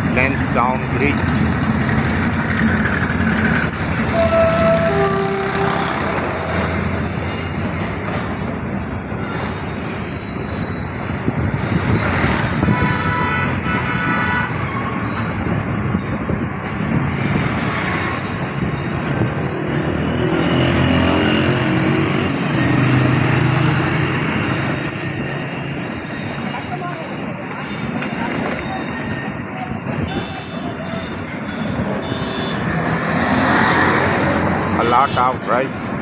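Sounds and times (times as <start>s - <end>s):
train wheels rumbling: 0.0s - 34.8s
high-pitched tone: 4.1s - 6.8s.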